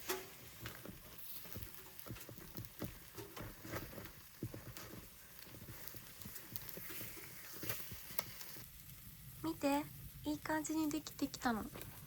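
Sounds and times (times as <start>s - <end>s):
picks clicking and tapping in pan: 0.0s - 9.0s
faint sizzle: 0.0s - 12.0s.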